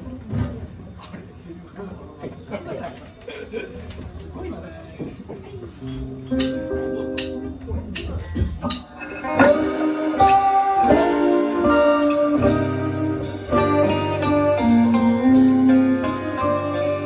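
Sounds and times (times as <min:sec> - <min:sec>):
guitar: 0:05.8 - 0:17.0
bass line: 0:09.4 - 0:17.0.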